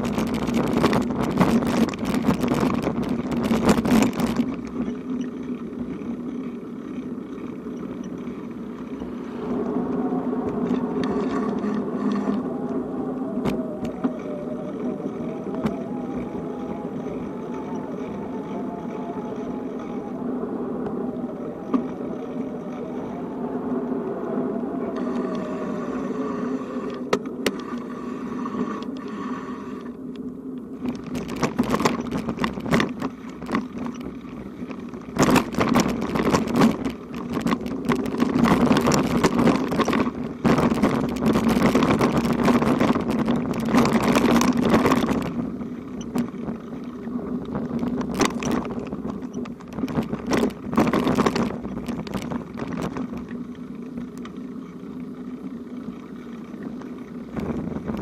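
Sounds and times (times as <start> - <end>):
rattling over bumpy surface: 0.0 - 9.1, 30.8 - 58.0
rumbling vehicle travel noise: 0.0 - 58.0.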